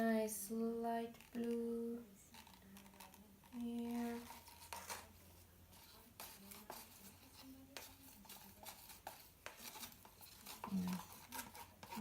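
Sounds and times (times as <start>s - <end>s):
plastic cups clicking and tapping: 2.3s - 5.2s, 5.8s - 12.0s.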